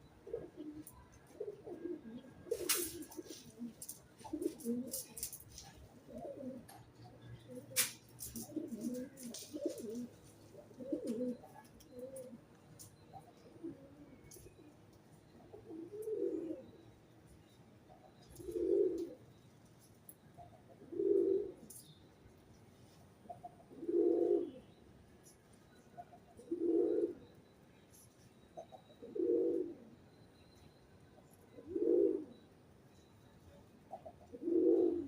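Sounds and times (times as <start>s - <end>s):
pigeon cooing: 0.2s - 17.0s, 17.9s - 19.3s, 20.4s - 21.8s, 23.3s - 24.7s, 26.0s - 27.3s, 28.6s - 30.1s, 31.5s - 32.4s, 33.9s - 35.0s
faint small bird chirps: 0.3s - 35.0s.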